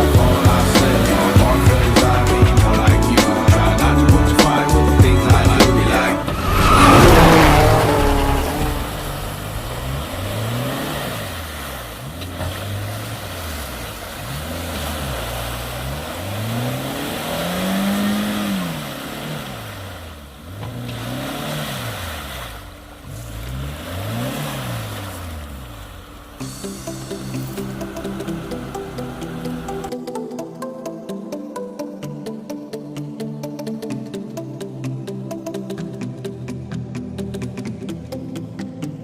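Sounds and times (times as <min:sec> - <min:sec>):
engine revving: 0:04.8 - 0:29.9.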